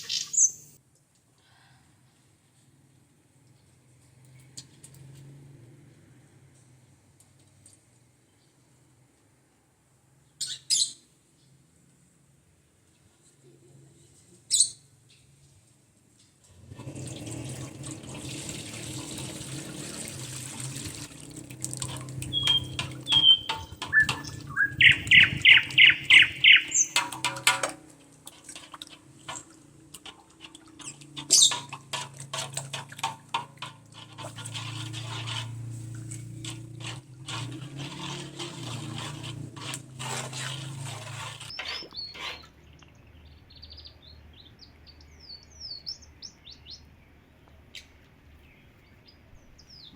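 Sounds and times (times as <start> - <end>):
birds chirping: 0.0 - 0.8, 22.1 - 27.1, 30.8 - 31.7, 41.5 - 49.9
tap water running into basin: 16.6 - 41.6
knocks and clatters of handling: 21.5 - 25.1, 26.7 - 42.0.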